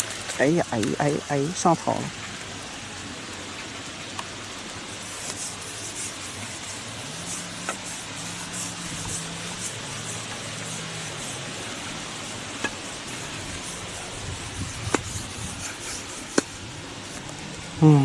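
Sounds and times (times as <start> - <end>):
faint low engine hum: 0.0 - 18.0
wind noise on microphone: 7.6 - 10.4, 11.1 - 17.9.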